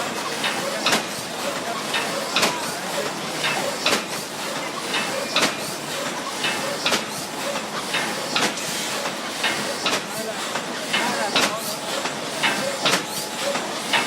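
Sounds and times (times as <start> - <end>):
machine clacking: 0.0 - 14.0
thermoforming machine hissing: 0.0 - 14.0.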